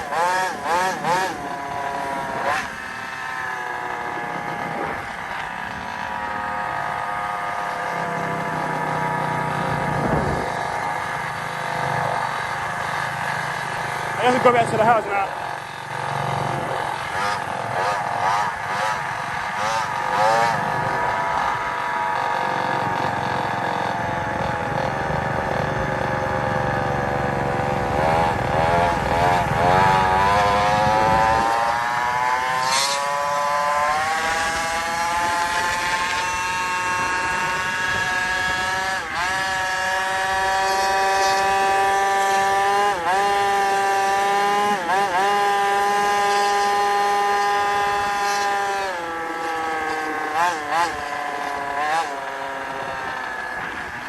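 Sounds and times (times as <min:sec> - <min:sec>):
small petrol engine revving: 0:00.0 - 0:54.0
wind rumble on microphone: 0:09.6 - 0:10.8, 0:27.8 - 0:32.2.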